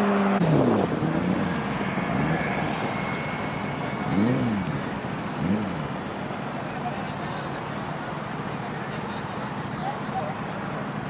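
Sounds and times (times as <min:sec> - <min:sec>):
motorcycle throttle blips: 0:00.0 - 0:06.1
high-revving motorcycle passing: 0:00.0 - 0:06.3
traffic noise: 0:00.0 - 0:11.0.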